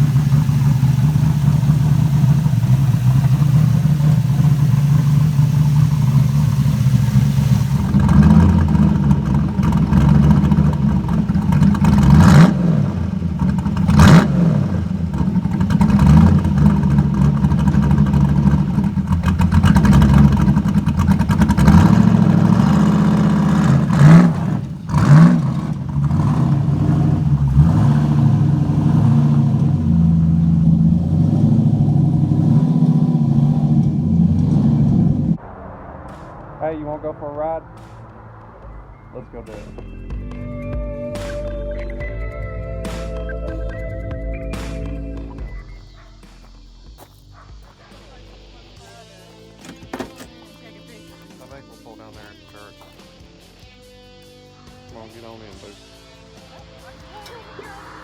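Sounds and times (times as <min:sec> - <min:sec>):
engine idling with choppy lope: 0:00.0 - 0:35.4, 0:39.2 - 0:58.0.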